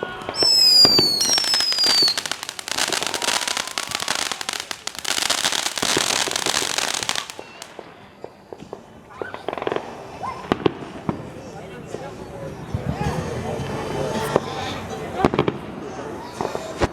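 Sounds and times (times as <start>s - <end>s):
fireworks crackling and popping: 0.0s - 11.3s
firework whistle: 0.2s - 7.8s.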